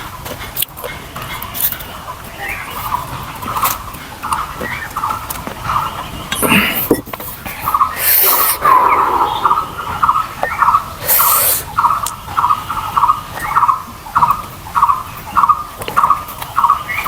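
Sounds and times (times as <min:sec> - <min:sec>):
short hissing burst: 0:08.0 - 0:10.2, 0:11.0 - 0:11.7.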